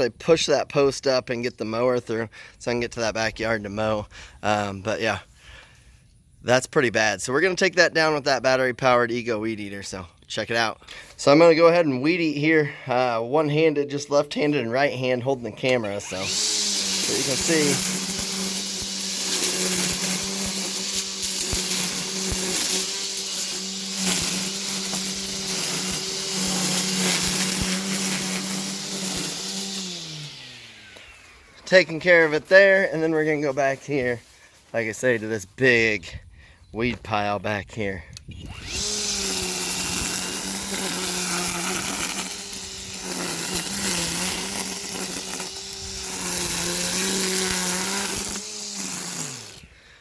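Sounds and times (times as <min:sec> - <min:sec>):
string trimmer whining: 0:07.4 - 0:35.3, 0:37.8 - 0:50.0
trimmer line ticking on weeds: 0:15.6 - 0:35.3, 0:38.2 - 0:49.8.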